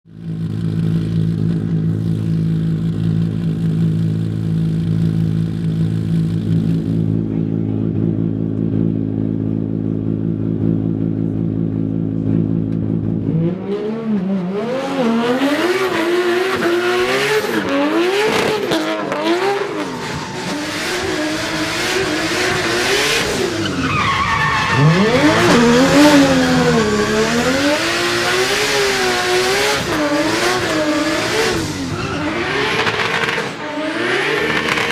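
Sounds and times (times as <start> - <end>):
car engine revving: 0.1 - 34.9
tyres squealing and skidding: 14.6 - 34.9.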